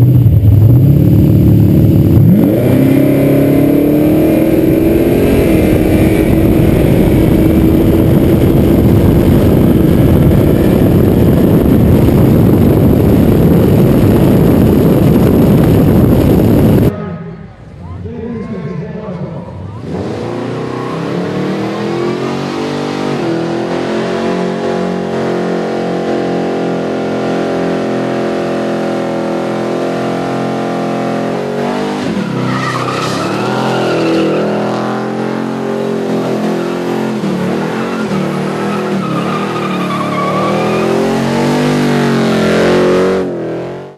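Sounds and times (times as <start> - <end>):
car engine revving: 0.0 - 17.9, 19.5 - 43.9
tyres squealing: 32.1 - 34.7.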